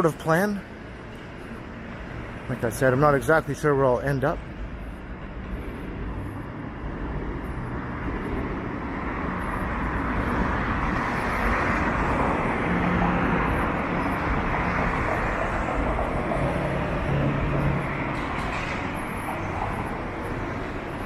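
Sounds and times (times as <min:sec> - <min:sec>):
street traffic passing: 0:00.0 - 0:21.0.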